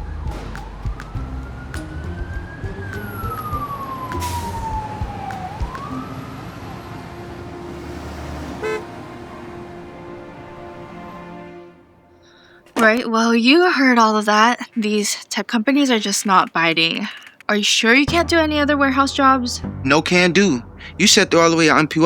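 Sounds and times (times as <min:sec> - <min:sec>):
emergency vehicle siren wailing: 0:00.0 - 0:11.7.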